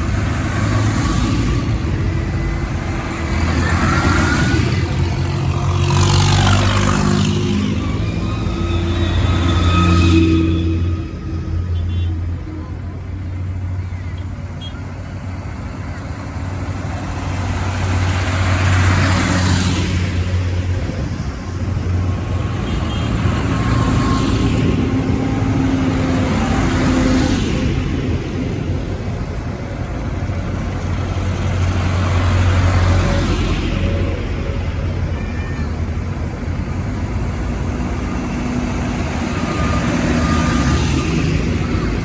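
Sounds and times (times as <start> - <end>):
tractors driving past: 0.0 - 42.0.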